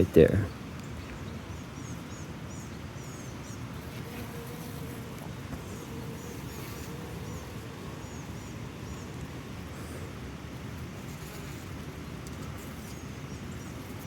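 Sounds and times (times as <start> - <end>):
small birds chirping: 0.0 - 4.5, 5.6 - 10.1
bees humming: 3.0 - 10.3
queen bee piping: 3.8 - 14.0.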